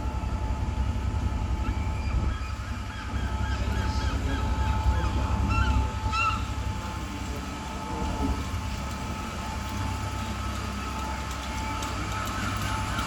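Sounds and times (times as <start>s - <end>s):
diesel train engine running: 0.0s - 13.0s.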